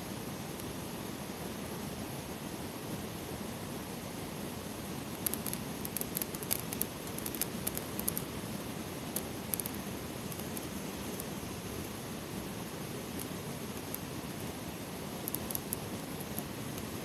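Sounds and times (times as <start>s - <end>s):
small sharp clicks: 5.1s - 8.3s, 9.1s - 11.3s, 13.1s - 14.1s, 15.2s - 16.9s.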